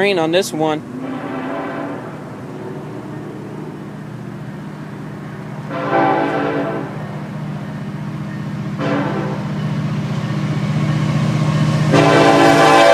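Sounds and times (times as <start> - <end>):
diesel locomotives rumbling: 0.0 - 12.9
train horn blast: 0.8 - 7.3, 8.8 - 9.6, 11.9 - 12.9.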